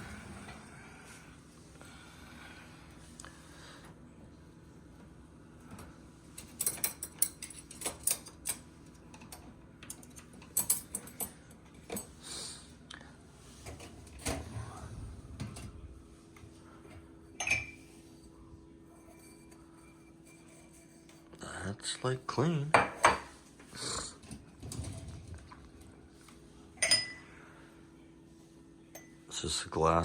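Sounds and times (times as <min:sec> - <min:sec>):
dishwasher racks being handled: 0:05.8 - 0:12.2, 0:13.5 - 0:15.9, 0:24.2 - 0:25.6
dishes and glasses clinking: 0:06.4 - 0:08.6, 0:17.3 - 0:17.9, 0:18.8 - 0:21.2, 0:22.7 - 0:23.4, 0:26.8 - 0:27.3, 0:28.9 - 0:29.2.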